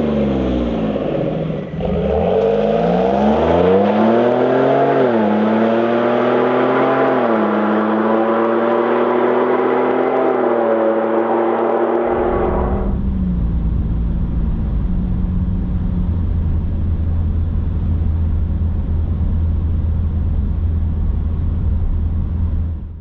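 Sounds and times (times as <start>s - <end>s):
deep exhaust rumble: 0.0s - 5.8s, 12.0s - 23.0s.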